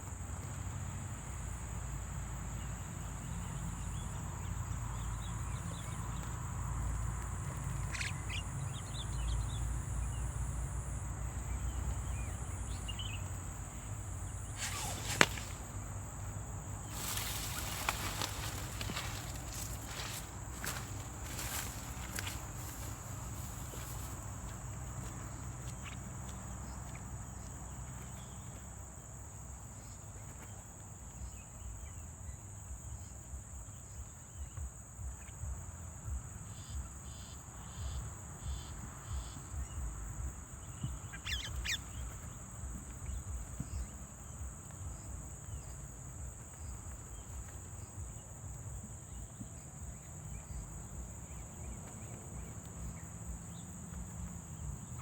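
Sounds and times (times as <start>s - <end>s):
high-pitched insect drone: 7.6s - 24.2s
bird call: 7.8s - 8.5s, 41.1s - 41.8s.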